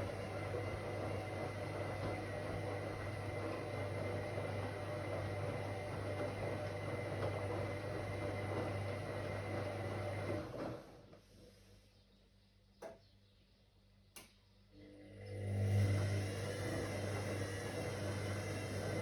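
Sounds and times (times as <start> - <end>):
washing machine running: 0.0 - 11.6, 14.8 - 19.0.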